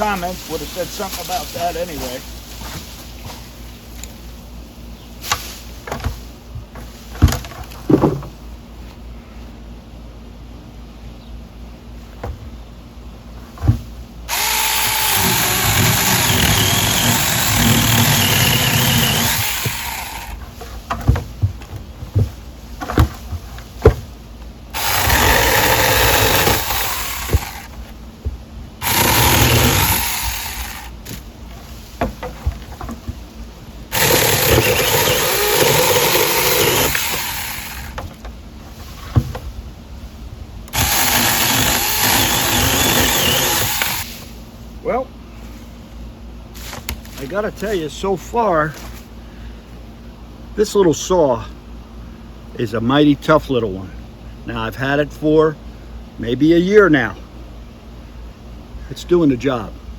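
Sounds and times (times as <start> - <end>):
battery chainsaw cutting wood: 14.3 - 20.4, 24.7 - 27.8, 28.8 - 31.0, 33.9 - 38.0, 40.7 - 44.1.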